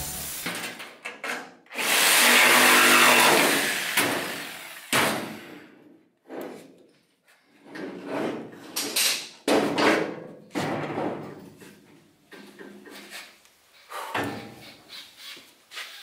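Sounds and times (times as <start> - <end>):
power saw cutting sheet metal: 0.0 - 0.6, 1.8 - 5.6.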